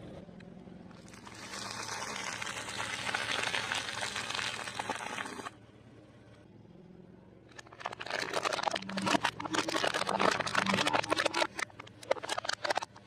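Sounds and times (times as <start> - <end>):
crispy fried food crunching: 1.0 - 5.4, 7.5 - 13.0.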